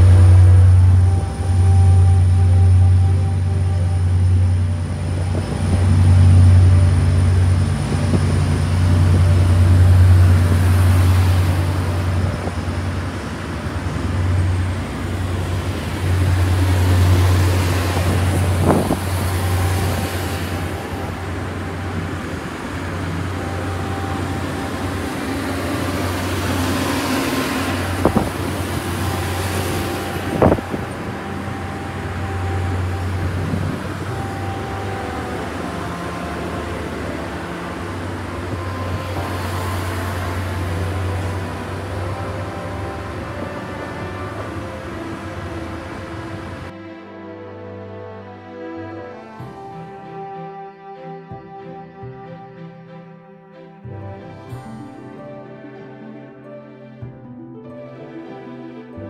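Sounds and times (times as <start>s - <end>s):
train motor humming: 0.0s - 46.8s.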